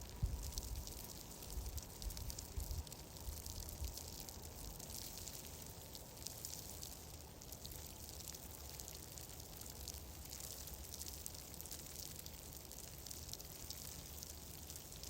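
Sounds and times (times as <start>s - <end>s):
low steady rumble: 0.0s - 4.5s
wood fire crackling: 0.0s - 15.0s.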